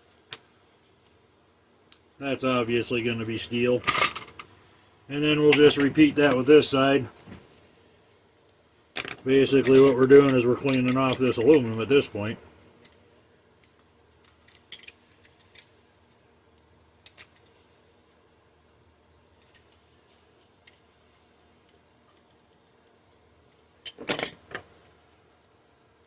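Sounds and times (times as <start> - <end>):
small metal parts clicking: 13.6 - 15.7, 17.0 - 17.6.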